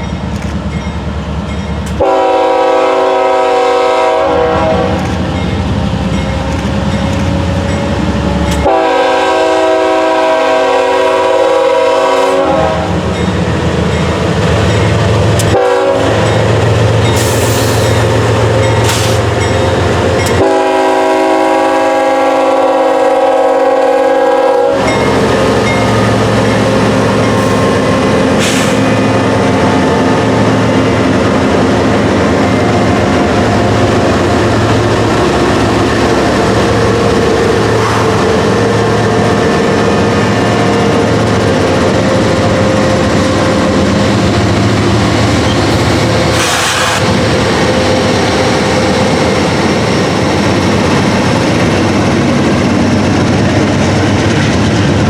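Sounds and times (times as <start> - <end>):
train rolling: 0.0 - 55.0
locomotive horn blasts: 2.0 - 5.1, 8.6 - 13.0, 15.4 - 16.5, 20.2 - 30.0
locomotive engine rumble: 12.0 - 22.0, 24.7 - 55.0.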